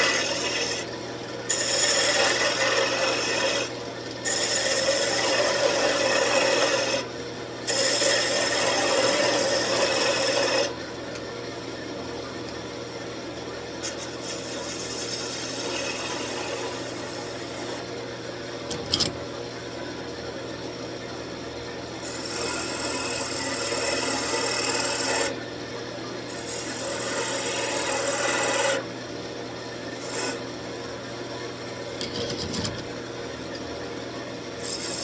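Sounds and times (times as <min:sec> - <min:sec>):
tool scraping spinning wood: 0:00.0 - 0:00.9, 0:01.5 - 0:07.1, 0:07.7 - 0:10.8, 0:13.8 - 0:17.9, 0:22.1 - 0:25.4, 0:26.4 - 0:28.9, 0:29.9 - 0:30.4, 0:31.7 - 0:33.1, 0:34.6 - 0:35.0
wood lathe running: 0:00.0 - 0:00.9, 0:01.5 - 0:07.0, 0:07.7 - 0:10.7, 0:13.9 - 0:17.8, 0:22.0 - 0:25.3, 0:26.3 - 0:28.8, 0:30.0 - 0:30.4, 0:34.6 - 0:35.0.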